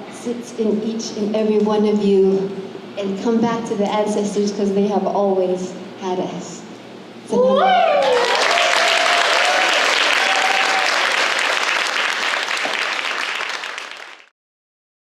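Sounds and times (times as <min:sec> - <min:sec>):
high whoops: 0:07.3 - 0:11.3
audience applauding and cheering: 0:07.8 - 0:14.3.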